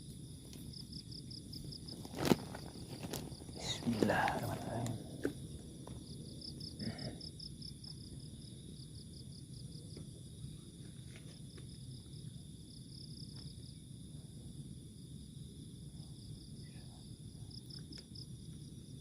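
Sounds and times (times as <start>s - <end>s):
high-pitched insect drone: 0.0s - 9.7s
crickets chirping: 0.0s - 19.0s.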